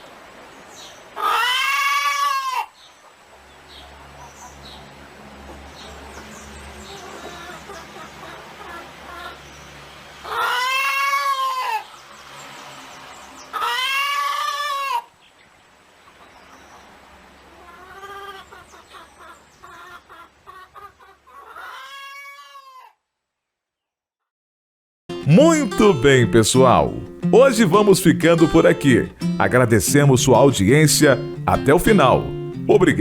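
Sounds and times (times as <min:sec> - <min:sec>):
animal calling: 0:01.2 - 0:02.8, 0:10.2 - 0:12.0, 0:13.4 - 0:15.2.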